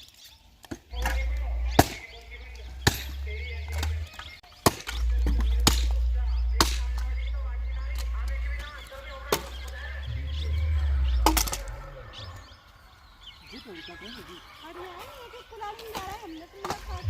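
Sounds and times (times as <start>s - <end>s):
axe chopping logs: 0.6s - 7.0s.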